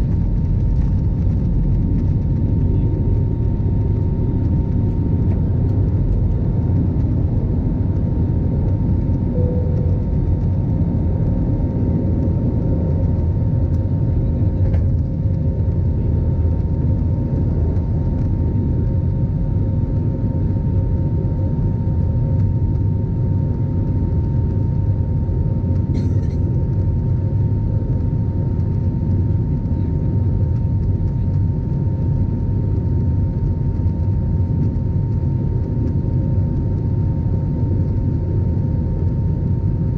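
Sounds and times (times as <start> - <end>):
jet engines rumbling: 0.0 - 39.9
steady high tone: 9.3 - 10.2.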